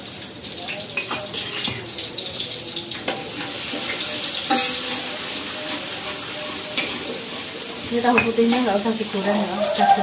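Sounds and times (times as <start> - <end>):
paste sizzling in hot oil: 0.0 - 10.0
metal spatula scraping wok: 1.0 - 1.8.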